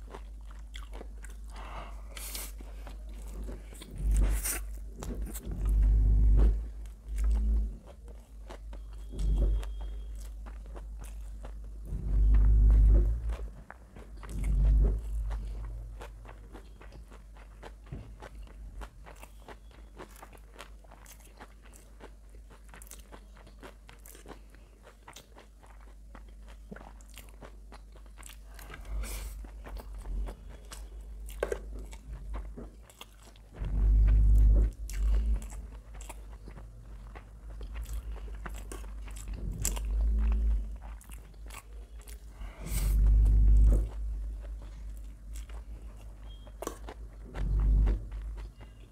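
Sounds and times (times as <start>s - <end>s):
chewing with wet mouth clicks: 0.0s - 42.4s, 43.0s - 48.9s
low thuds: 3.4s - 7.7s, 11.7s - 15.7s, 33.5s - 35.7s.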